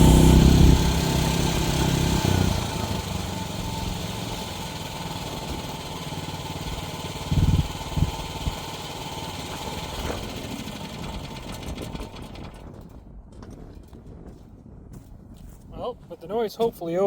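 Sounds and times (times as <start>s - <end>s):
heavy low thumps: 0.0s - 2.7s
excavator engine running: 0.0s - 12.8s.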